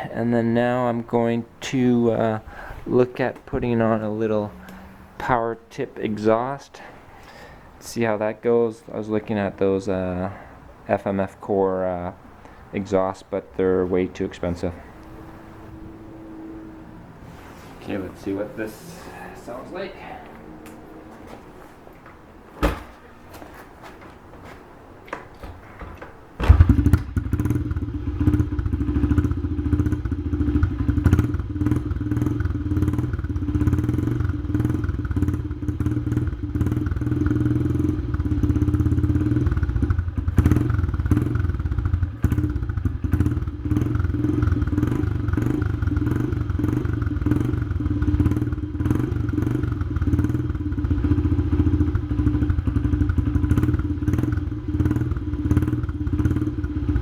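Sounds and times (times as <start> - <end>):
thump and knocks: 22.6 - 23.0, 25.2 - 26.8
small motorcycle engine idling: 26.4 - 57.0.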